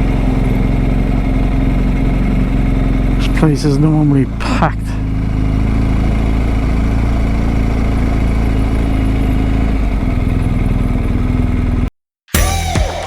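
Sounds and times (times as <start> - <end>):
motorcycle engine running: 0.0 - 13.0
music: 12.3 - 13.0.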